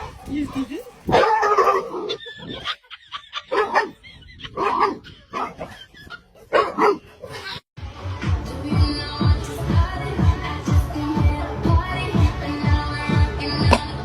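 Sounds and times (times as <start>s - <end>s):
dog barking: 1.1s - 2.1s, 3.5s - 4.0s, 4.6s - 5.6s, 6.5s - 7.1s.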